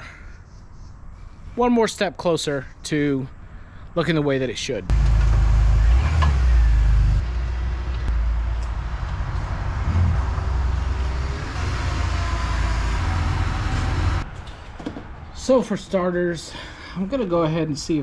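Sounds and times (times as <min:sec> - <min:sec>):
motor vehicle engine rumble: 0:04.9 - 0:15.4.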